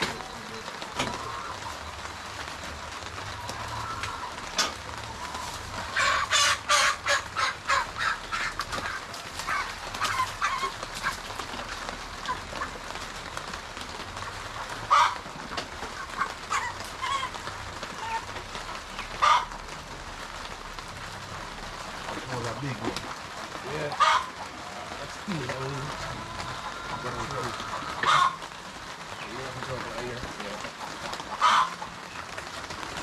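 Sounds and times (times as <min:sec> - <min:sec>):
chickens squawking and clucking: 0:00.0 - 0:33.0.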